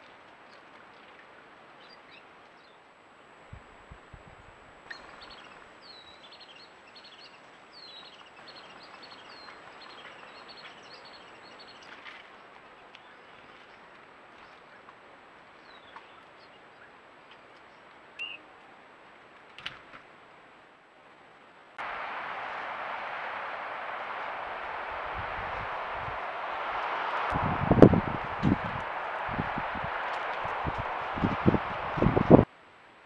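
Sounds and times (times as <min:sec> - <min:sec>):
steady outdoor hiss: 0:00.0 - 0:33.0
wild birds chirping: 0:04.9 - 0:12.0.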